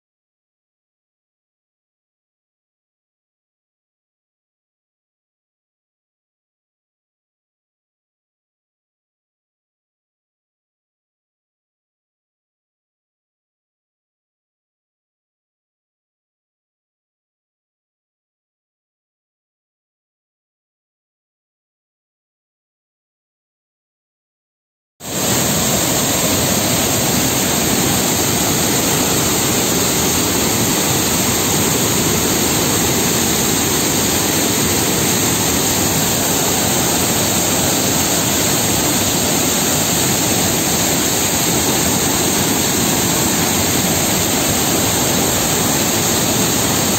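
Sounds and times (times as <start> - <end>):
waterfall rushing: 25.0 - 46.9.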